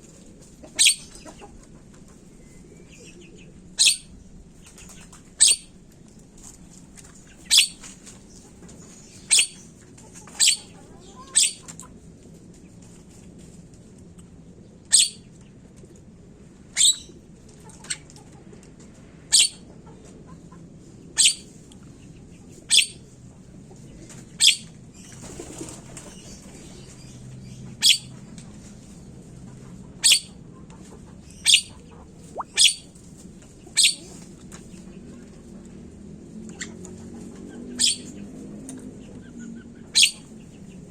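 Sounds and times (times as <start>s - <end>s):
bird giving sharp high calls: 3.8s - 4.1s, 5.4s - 5.7s, 7.5s - 7.8s, 31.4s - 32.9s, 33.8s - 34.0s.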